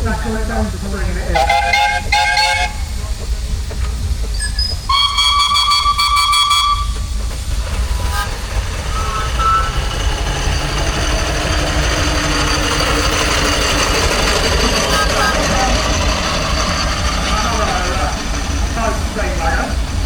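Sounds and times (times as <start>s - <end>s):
steam engine running: 0.0s - 20.0s
steam engine whistle: 1.4s - 2.9s, 4.4s - 7.2s, 8.0s - 18.0s
low rumble: 6.8s - 20.0s.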